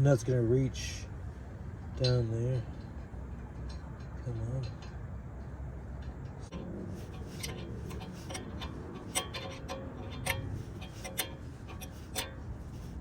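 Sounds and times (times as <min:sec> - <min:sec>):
sharp metallic clicks of hand tool: 0:07.0 - 0:13.0.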